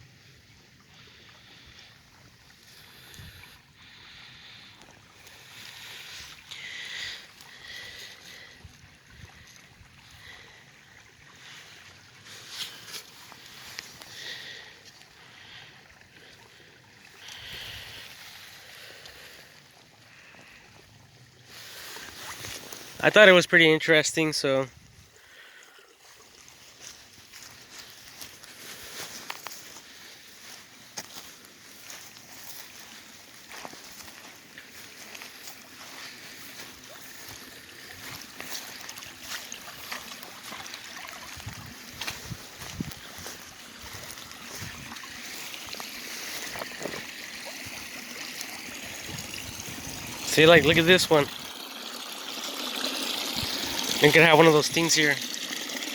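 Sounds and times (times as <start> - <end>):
water lapping and trickling: 0.0 - 55.9
small crackles and ticks: 25.2 - 40.9.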